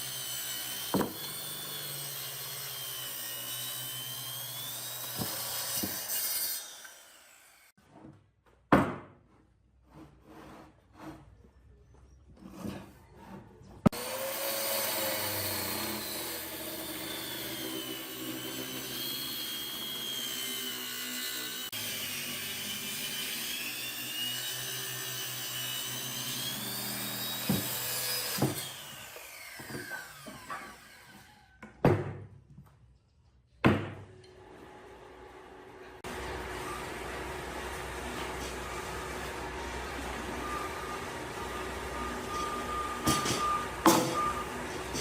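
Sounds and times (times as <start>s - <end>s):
electric power tool whining: 0.0s - 7.7s, 13.9s - 31.5s, 36.0s - 45.0s.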